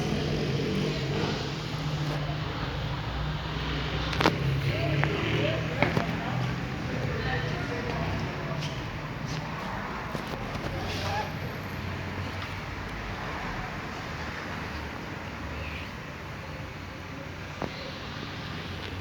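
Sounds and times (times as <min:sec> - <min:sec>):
vehicle engine running: 0:00.0 - 0:15.1.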